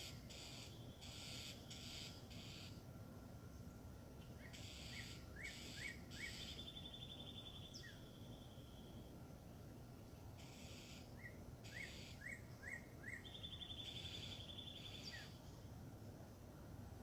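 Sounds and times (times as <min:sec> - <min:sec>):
birds calling: 0:00.0 - 0:02.8, 0:04.2 - 0:08.8, 0:10.4 - 0:15.6
rapid high bird trill: 0:00.0 - 0:02.8, 0:04.5 - 0:08.8, 0:10.4 - 0:15.4.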